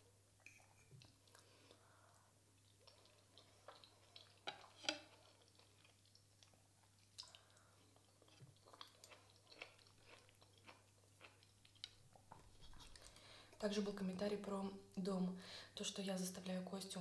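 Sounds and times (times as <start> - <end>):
faint close chewing: 0.4 - 13.6.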